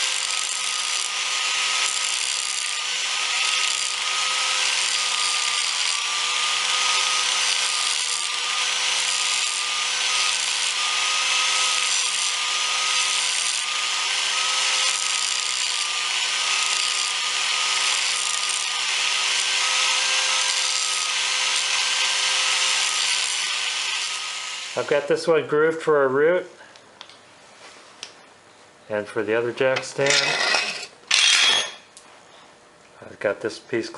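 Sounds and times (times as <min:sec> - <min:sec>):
grinder grinding steel: 0:00.0 - 0:25.1, 0:29.8 - 0:31.8.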